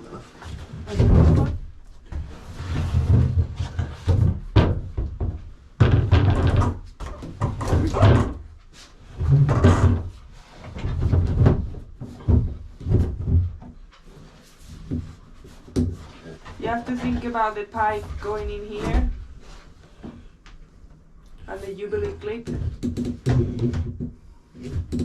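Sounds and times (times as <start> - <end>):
thuds and knocks of objects: 0.5 - 8.5, 9.2 - 13.9, 22.5 - 25.0.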